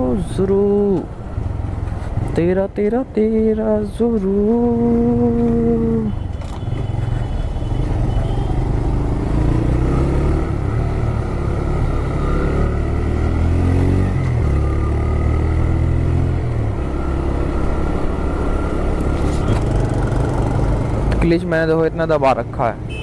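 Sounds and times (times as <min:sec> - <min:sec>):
motorcycle engine revving: 0:08.0 - 0:21.4.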